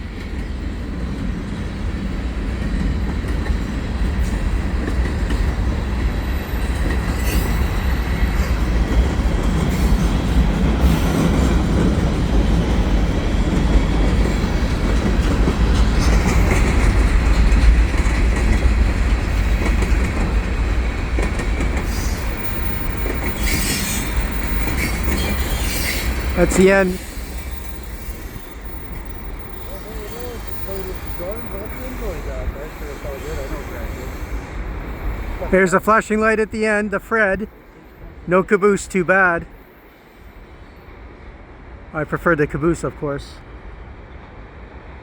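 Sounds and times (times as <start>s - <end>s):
wheels clickety-clack: 0.0s - 33.8s
freight train wheels rumbling: 0.0s - 45.0s
faint high wheel squeal: 6.2s - 8.6s, 21.8s - 35.4s.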